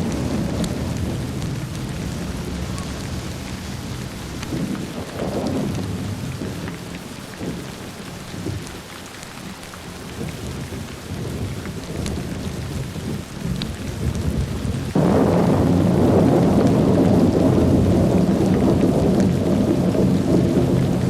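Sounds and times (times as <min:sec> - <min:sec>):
loud thunder peal: 0:00.0 - 0:06.6, 0:14.1 - 0:21.0
low thunder rumbles: 0:00.0 - 0:08.7, 0:10.1 - 0:21.0
rain falling: 0:00.0 - 0:21.0.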